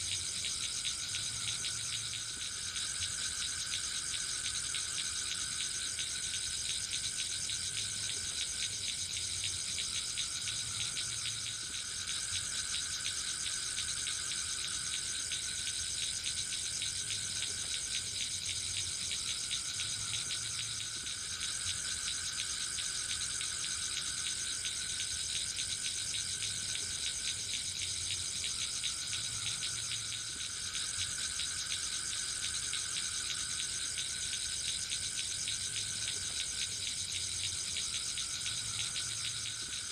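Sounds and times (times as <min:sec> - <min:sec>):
crickets trilling: 0:00.0 - 0:39.9
lower insect trill: 0:00.0 - 0:39.9.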